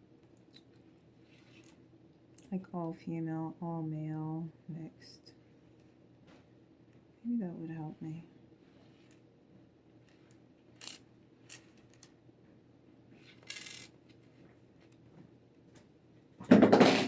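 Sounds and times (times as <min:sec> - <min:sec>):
plastic puzzle pieces clicking: 0:10.8 - 0:12.1, 0:13.3 - 0:13.9
puzzle pieces rattling on table: 0:10.8 - 0:12.1, 0:13.2 - 0:13.9
loud knock: 0:16.5 - 0:17.0.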